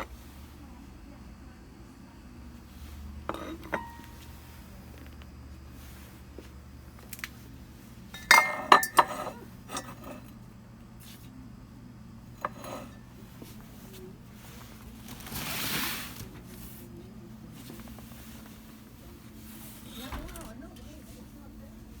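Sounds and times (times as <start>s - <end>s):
dishware clinking: 3.3s - 4.4s, 8.2s - 10.1s.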